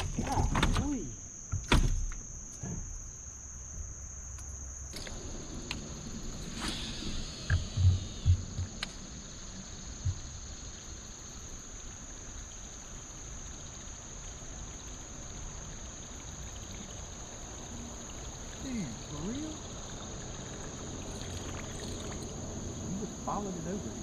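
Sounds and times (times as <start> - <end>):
faint water: 0.0 - 24.0
insects droning: 0.0 - 24.0
low thumps: 7.5 - 9.3, 9.9 - 10.6.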